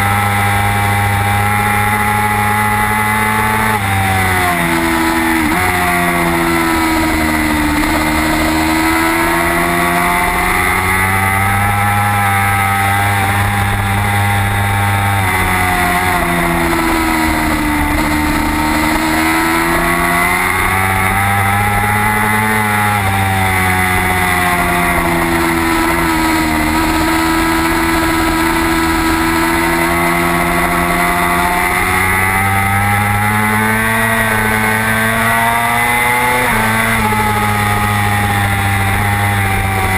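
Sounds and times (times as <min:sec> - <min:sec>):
race motorcycle engine revving: 0:00.0 - 0:39.9.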